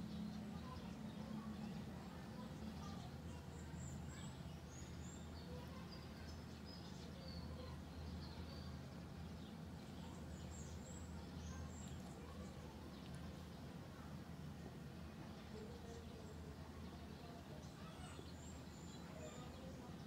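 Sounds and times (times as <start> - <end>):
faint bird chirps: 0.0 - 14.2, 15.3 - 19.9.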